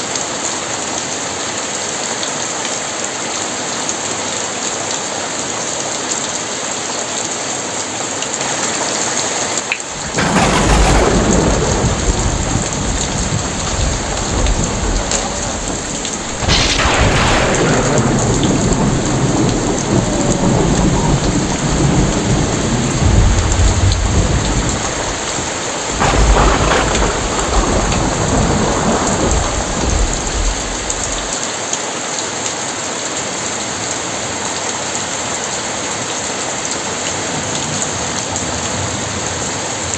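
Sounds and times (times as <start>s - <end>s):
heavy rain: 0.0s - 39.9s
thunder clap: 9.8s - 31.4s
low thunder rumble: 9.9s - 31.4s.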